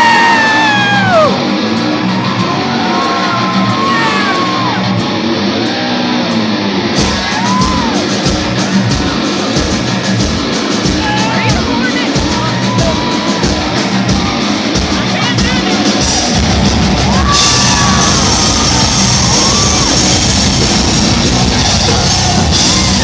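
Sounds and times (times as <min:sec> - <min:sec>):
electric guitars: 0:00.0 - 0:23.0
live heavy metal band: 0:00.0 - 0:23.0
fast heavy drumming: 0:06.9 - 0:23.0.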